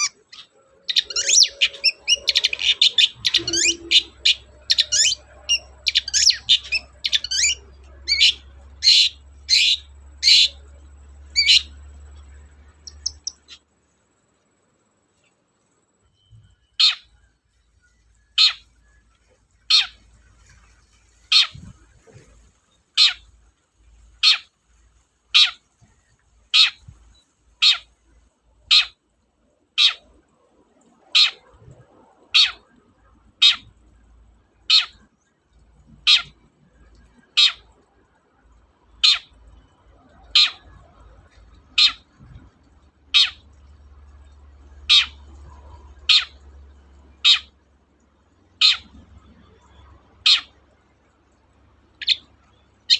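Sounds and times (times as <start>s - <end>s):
shrike calling: 0.0s - 13.7s, 16.2s - 18.8s, 27.6s - 27.9s, 39.0s - 41.1s, 41.7s - 42.3s, 43.1s - 43.5s, 44.8s - 46.4s, 47.1s - 47.6s, 48.6s - 50.6s, 51.9s - 52.9s.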